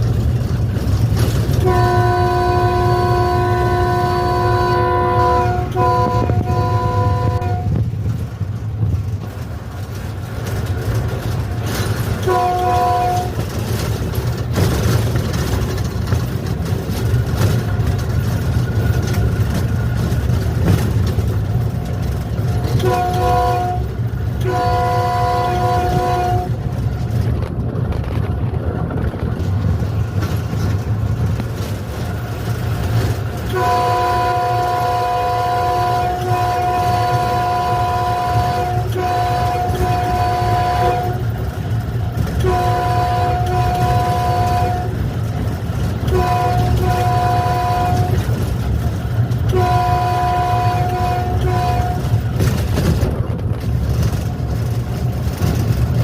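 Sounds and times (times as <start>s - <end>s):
locomotive rumble: 0.0s - 56.0s
locomotive air horn blasts: 1.6s - 7.8s, 12.2s - 13.5s, 22.6s - 26.7s, 33.4s - 41.3s, 42.4s - 45.0s, 46.0s - 48.3s, 49.5s - 52.2s.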